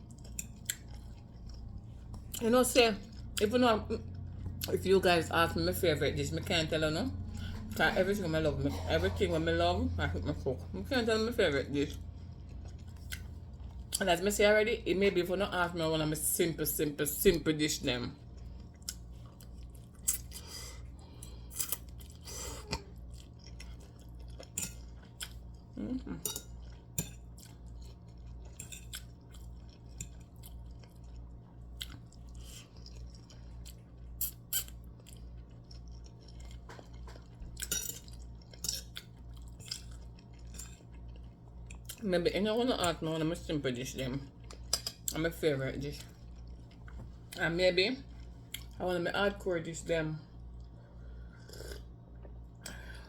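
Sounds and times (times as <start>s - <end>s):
pulsing low hum: 0.0s - 14.0s.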